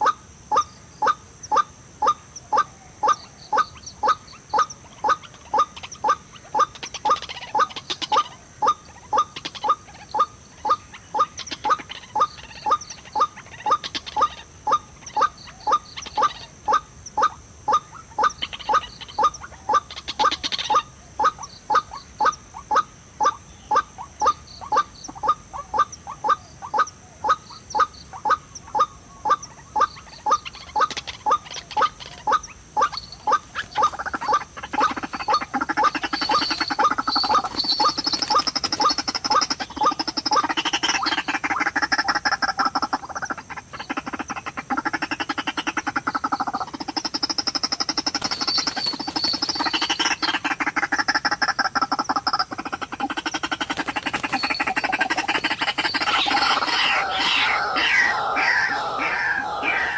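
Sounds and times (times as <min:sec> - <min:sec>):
waterhen harsh call: 0:32.3 - 0:42.1, 0:53.4 - 0:59.9.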